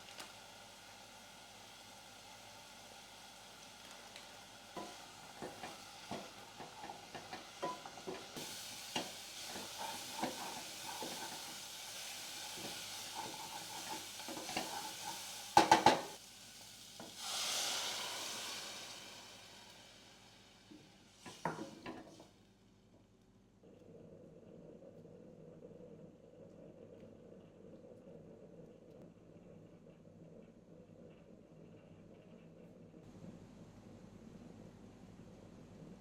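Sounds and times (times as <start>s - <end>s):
food sizzling in pan: 0.0s - 22.4s
utensil tapping and scraping pan: 4.8s - 11.7s, 12.5s - 16.2s, 21.2s - 22.2s
burst of hissing: 17.0s - 20.4s.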